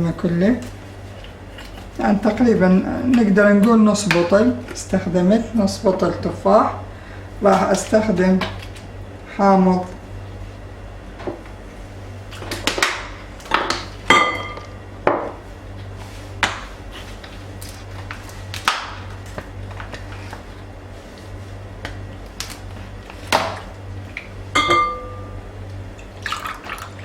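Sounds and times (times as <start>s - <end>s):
low hum: 13.2s - 27.0s
glassware and utensils clinking: 14.1s - 14.6s, 24.6s - 25.3s.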